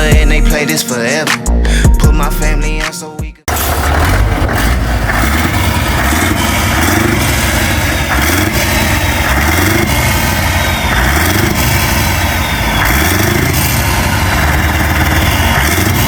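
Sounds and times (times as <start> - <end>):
engine running: 3.5 - 16.0.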